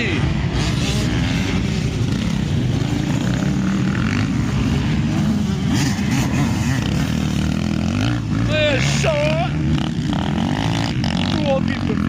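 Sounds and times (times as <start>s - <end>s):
motocross bikes revving: 0.0s - 12.0s.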